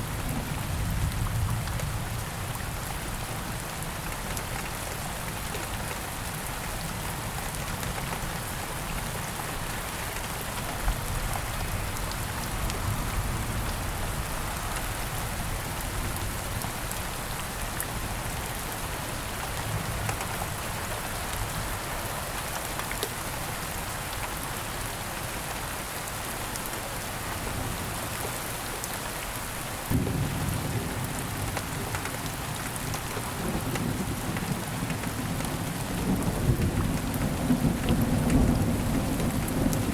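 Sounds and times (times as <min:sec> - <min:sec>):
steady rain falling: 0:00.0 - 0:39.9
low thunder rumble: 0:29.9 - 0:31.6.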